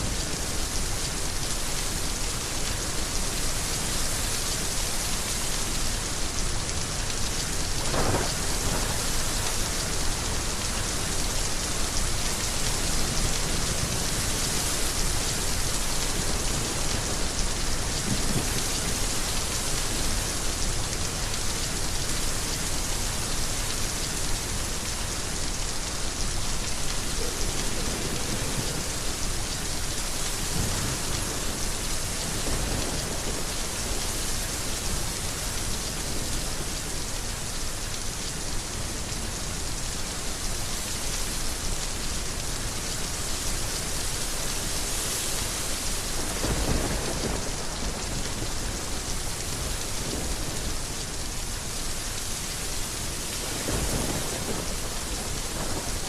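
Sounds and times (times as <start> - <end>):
heavy rain: 0.0 - 56.0
thunder rumble: 53.4 - 56.0.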